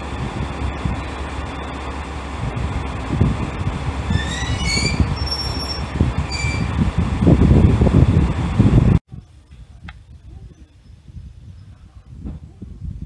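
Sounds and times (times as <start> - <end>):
train low rumble: 0.0 - 13.0
train brakes squealing: 4.1 - 6.7.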